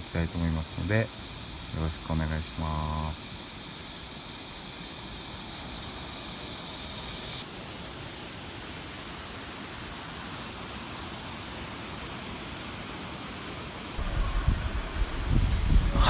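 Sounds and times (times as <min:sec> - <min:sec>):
bright hiss: 0:14.0 - 0:16.0.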